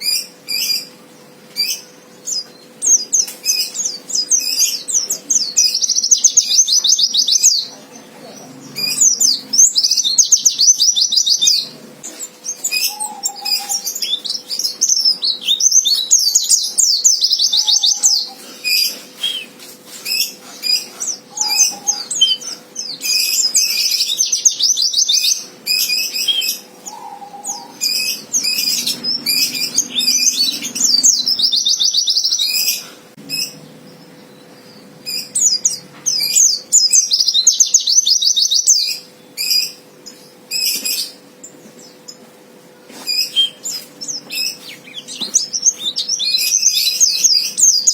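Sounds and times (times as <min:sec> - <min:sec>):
bird high trilling: 0:08.6 - 0:33.6.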